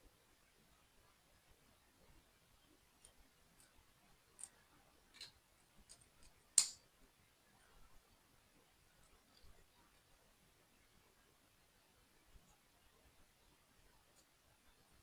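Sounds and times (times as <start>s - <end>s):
plastic toy pieces clicking: 6.6s - 6.8s.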